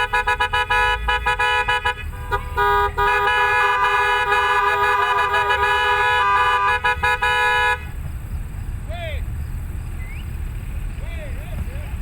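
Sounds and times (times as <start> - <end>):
truck horns honking: 0.0 - 8.3.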